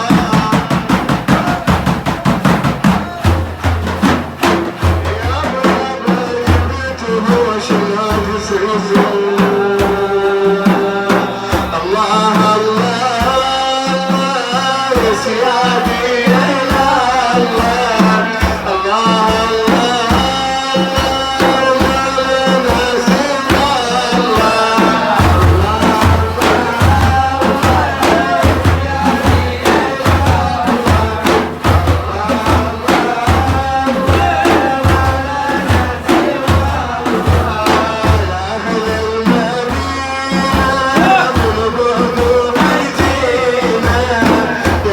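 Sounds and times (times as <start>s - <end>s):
hand drums beating: 0.0s - 44.9s.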